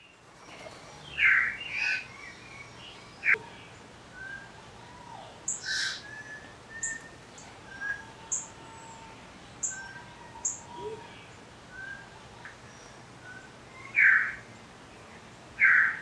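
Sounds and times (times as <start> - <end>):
birds chirping: 0.0 - 16.0
thin whistled bird notes: 5.5 - 9.0.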